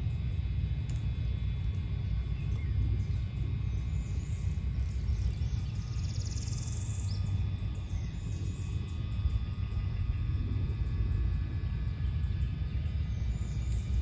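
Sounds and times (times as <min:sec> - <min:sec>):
steady low rumble: 0:00.0 - 0:14.0
faint bird chirps: 0:01.6 - 0:10.3.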